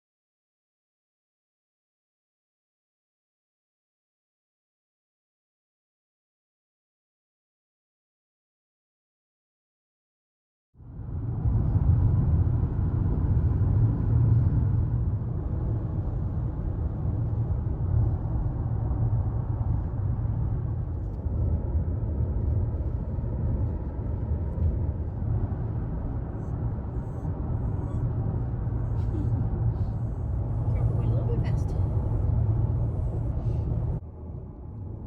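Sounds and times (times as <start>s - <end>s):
car driving on road: 10.8s - 35.0s.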